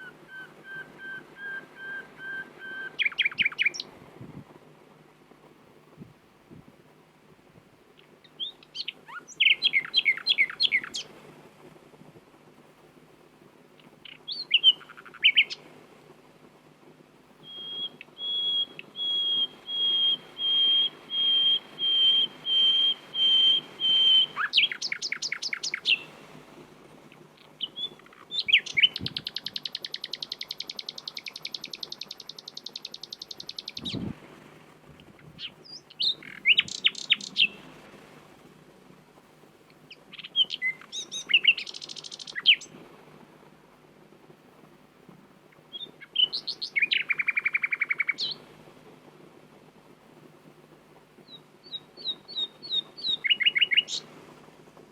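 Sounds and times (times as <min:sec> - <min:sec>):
nightingale singing: 0:00.0 - 0:04.0, 0:08.0 - 0:11.1, 0:13.8 - 0:15.7, 0:17.4 - 0:26.2, 0:27.1 - 0:34.1, 0:35.1 - 0:37.7, 0:39.7 - 0:42.8, 0:45.5 - 0:48.5, 0:51.2 - 0:54.1.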